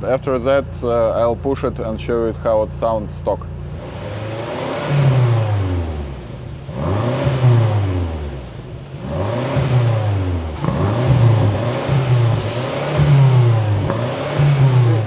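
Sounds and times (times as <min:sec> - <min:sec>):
car engine revving: 0:10.6 - 0:15.0.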